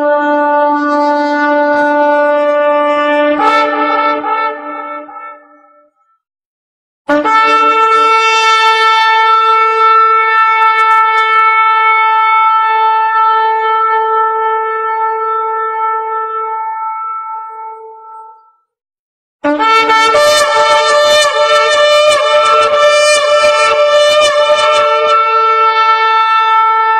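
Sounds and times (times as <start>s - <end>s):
long horn note: 0.0s - 5.7s, 7.1s - 18.3s, 19.4s - 26.9s.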